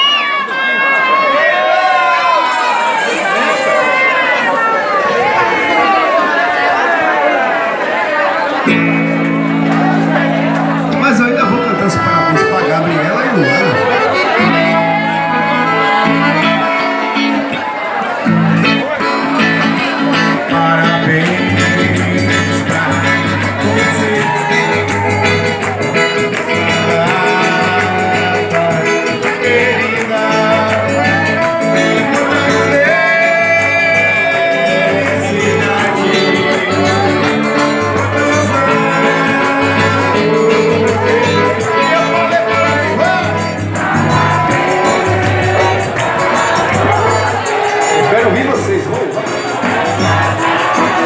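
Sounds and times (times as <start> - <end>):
band music with singing: 0.0 - 51.0
bass beat: 21.2 - 51.0.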